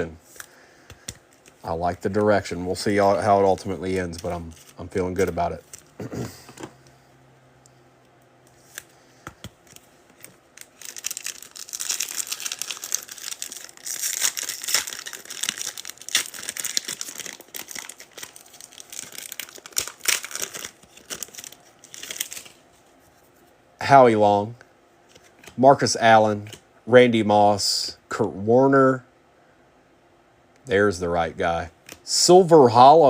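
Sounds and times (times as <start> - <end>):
wrapper being torn and crinkled: 10.2 - 22.6.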